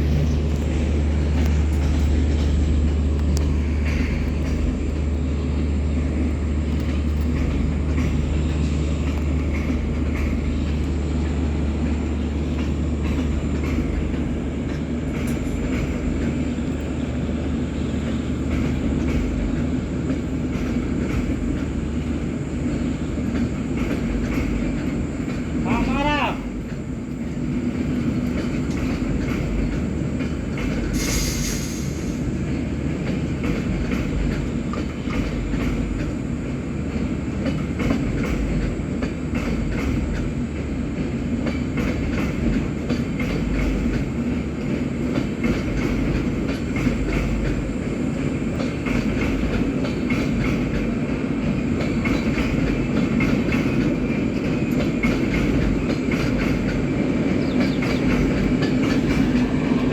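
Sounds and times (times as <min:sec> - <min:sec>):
train wheels clattering on rails: 0:00.0 - 0:59.9
brief hiss: 0:30.9 - 0:32.2.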